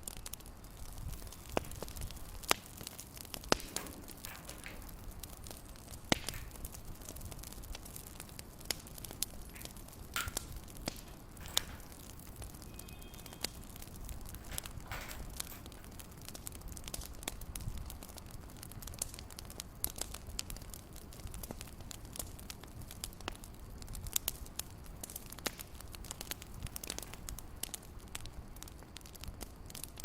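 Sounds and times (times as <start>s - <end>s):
fire crackling and popping: 0.0s - 30.0s.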